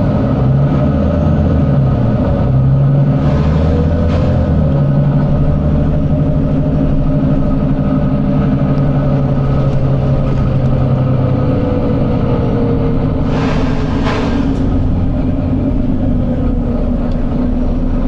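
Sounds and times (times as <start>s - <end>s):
bus diesel engine running: 0.0s - 18.0s
brief hiss: 13.3s - 14.8s.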